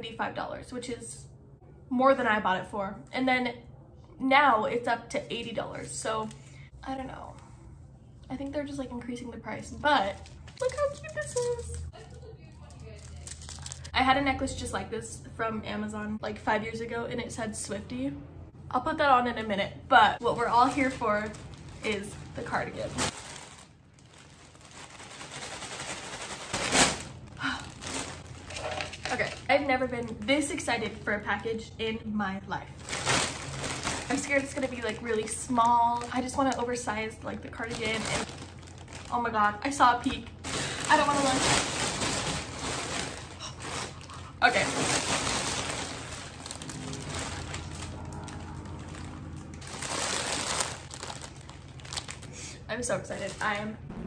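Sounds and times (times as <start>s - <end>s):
plastic mailer bag crinkling: 10.0s - 13.9s, 20.2s - 30.2s, 32.8s - 53.7s.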